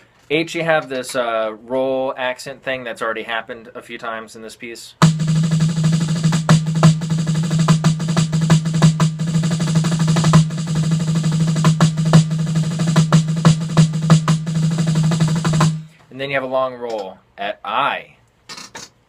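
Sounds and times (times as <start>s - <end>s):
snare drum rolls and accents: 5.0s - 16.0s.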